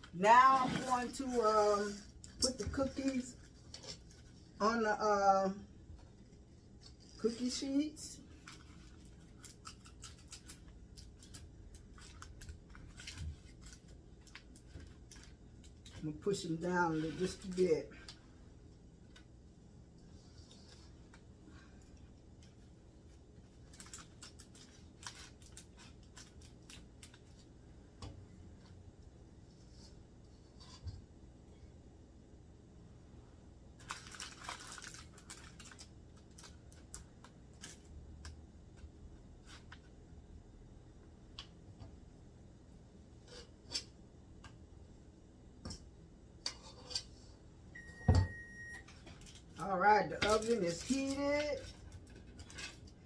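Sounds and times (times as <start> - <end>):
faint clicks and scrapes: 19.9 - 28.8, 29.4 - 31.1, 46.4 - 47.3
oven electronic beep: 47.7 - 48.9.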